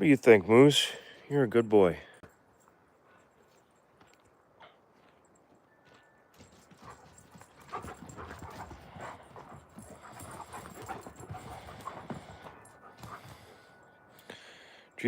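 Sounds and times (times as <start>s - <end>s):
dog paws scratching soil: 6.4s - 13.7s.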